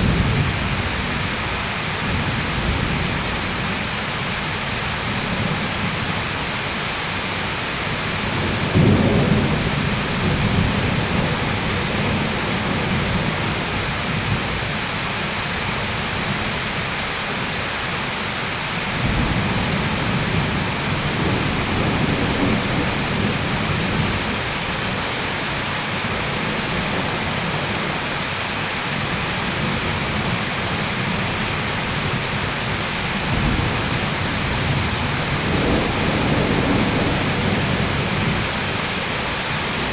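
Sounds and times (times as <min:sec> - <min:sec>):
thunder rumbling: 0:00.0 - 0:03.9, 0:08.1 - 0:14.8, 0:19.0 - 0:25.3, 0:29.0 - 0:39.9
heavy rain: 0:00.0 - 0:39.9.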